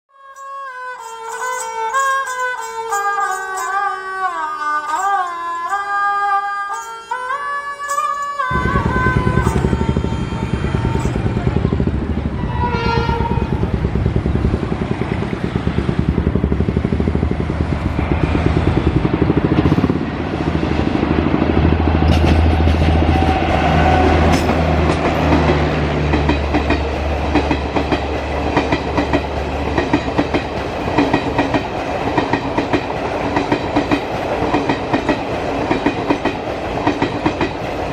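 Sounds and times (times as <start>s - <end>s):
music: 0.1s - 11.8s
train horn: 0.1s - 14.4s, 21.8s - 26.0s
train rumbling past: 7.4s - 37.9s
wheels clacking over rail joints: 7.9s - 20.2s, 21.3s - 37.9s.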